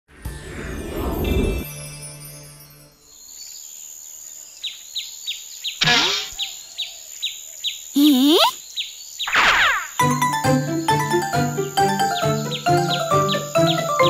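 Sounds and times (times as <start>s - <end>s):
high-pitched insect-like tone: 8.0s - 8.6s.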